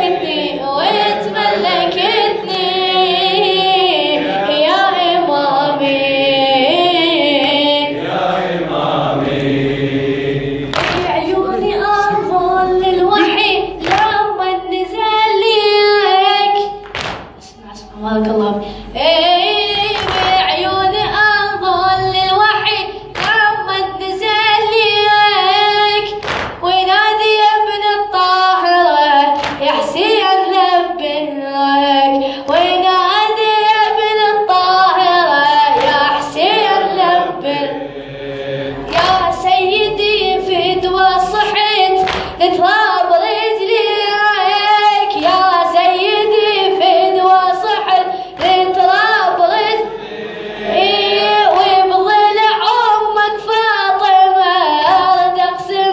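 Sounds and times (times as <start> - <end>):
voices joining in singing: 0.0 - 16.8, 32.1 - 55.9
sharp slaps: 10.7 - 11.2, 13.2 - 14.3, 16.6 - 17.6, 19.9 - 20.5, 23.1 - 23.6, 26.1 - 26.7, 29.4 - 29.8, 35.7 - 36.3, 38.9 - 39.4, 42.0 - 42.4, 48.4 - 48.8.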